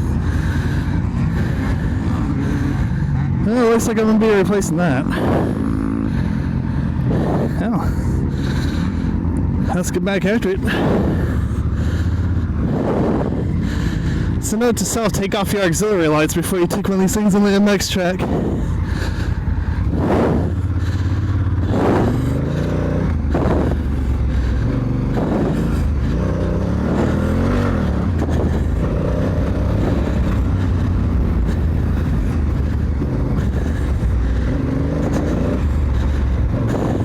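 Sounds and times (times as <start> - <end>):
motorcycle engine revving off-road: 0.0 - 37.0.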